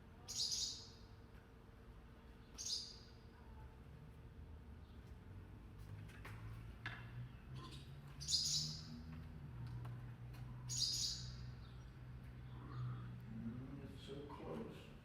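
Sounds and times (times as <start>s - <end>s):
small bird high chirps: 0.2s - 1.1s, 2.4s - 3.2s, 8.2s - 9.0s, 10.6s - 11.9s.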